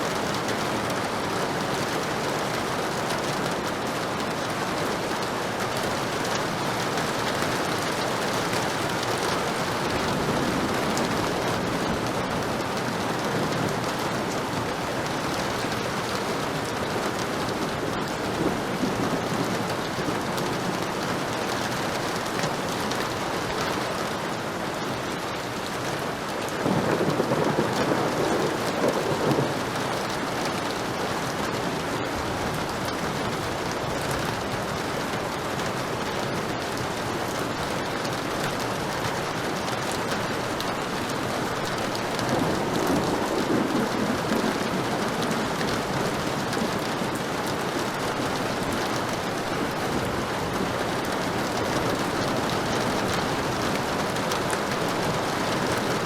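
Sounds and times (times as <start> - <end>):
heavy rain falling: 0.0 - 56.0
thunder rolling: 26.6 - 29.7, 42.1 - 47.0.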